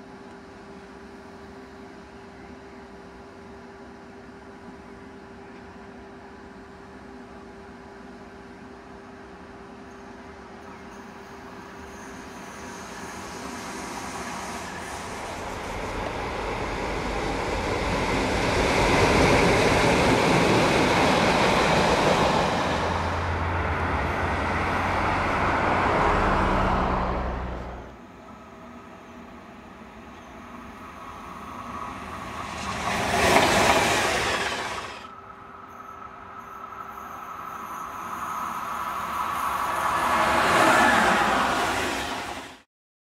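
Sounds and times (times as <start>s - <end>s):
train wheels clattering on rails: 30.9s - 35.1s.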